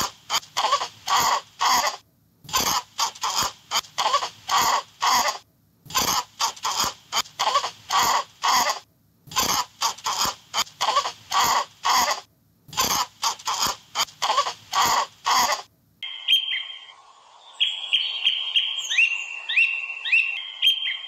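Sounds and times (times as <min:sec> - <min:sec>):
rasping animal calls: 0:00.0 - 0:15.7.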